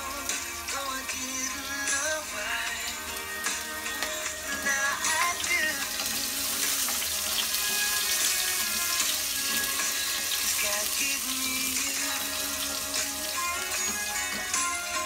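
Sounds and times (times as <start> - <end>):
food sizzling in hot oil: 0.0 - 15.0
spatula stirring in pot: 3.9 - 14.5.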